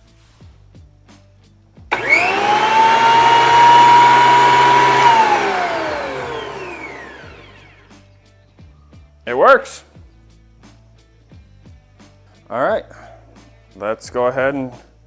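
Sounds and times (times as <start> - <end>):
jointer motor whine: 1.9 - 7.8.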